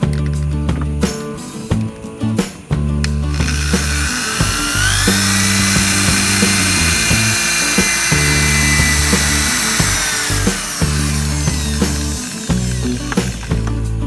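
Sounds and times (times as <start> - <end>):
background music with steady beat: 0.0 - 14.0
high-pitched power tool whine: 3.3 - 13.7.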